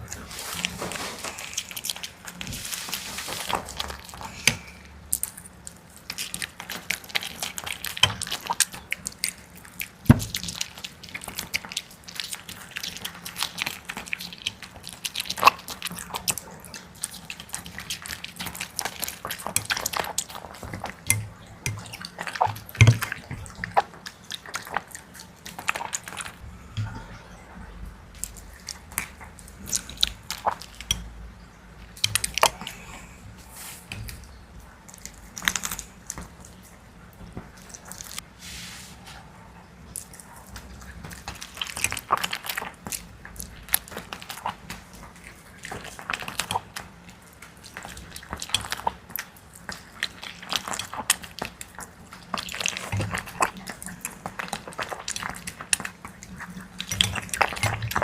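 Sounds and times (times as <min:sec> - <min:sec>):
dog chewing wetly: 0:00.0 - 0:27.1, 0:39.8 - 0:58.0.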